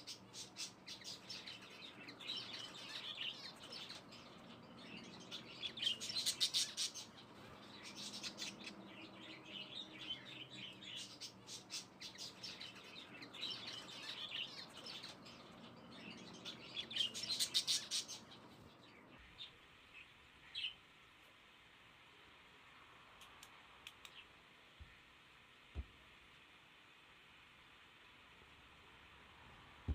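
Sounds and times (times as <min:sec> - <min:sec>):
small birds chirping: 0:00.0 - 0:26.5
faint clicks: 0:23.2 - 0:24.3.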